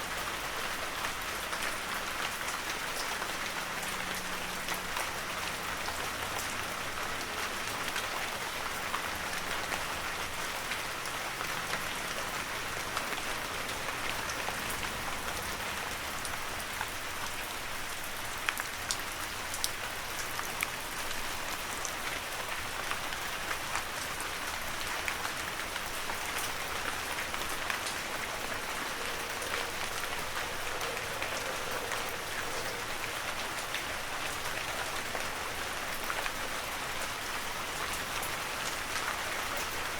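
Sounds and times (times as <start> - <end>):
heavy rain: 0.0 - 39.9
raindrops tapping: 24.9 - 39.9.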